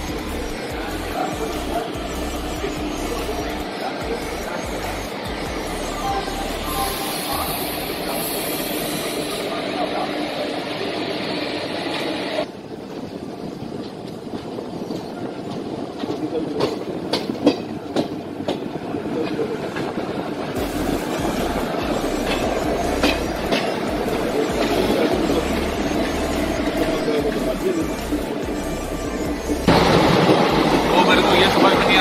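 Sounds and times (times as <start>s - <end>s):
train wheels on track: 0.0s - 32.0s
clickety-clack over rail joints: 12.9s - 28.4s.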